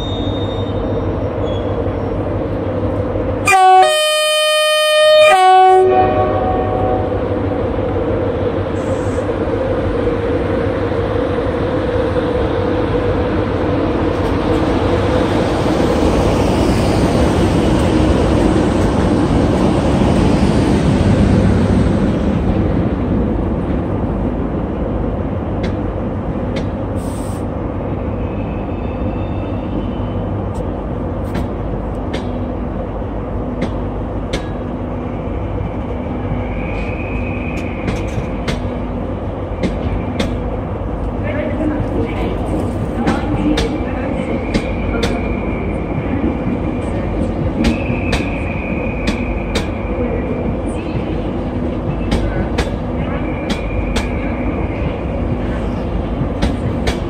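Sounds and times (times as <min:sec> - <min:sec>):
short high squeal: 0:00.0 - 0:01.7
train rumble: 0:00.0 - 0:57.0.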